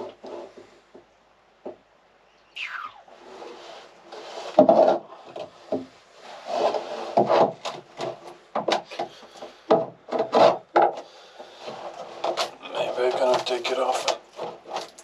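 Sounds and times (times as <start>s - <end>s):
wood being pried by hand: 7.1s - 12.6s
sharp knocks on wood: 9.7s - 11.0s.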